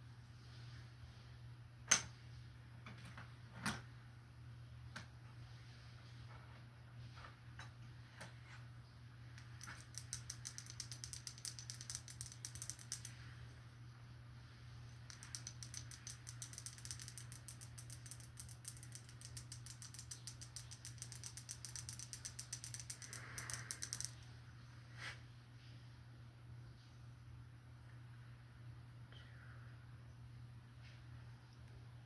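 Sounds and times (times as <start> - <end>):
steady low hum: 3.4 - 32.0
rapid light clicks: 9.4 - 13.2, 15.0 - 24.3.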